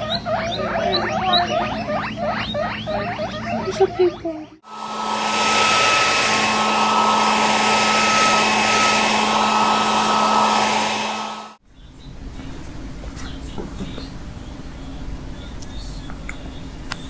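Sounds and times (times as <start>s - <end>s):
blow dryer running: 4.6s - 11.6s.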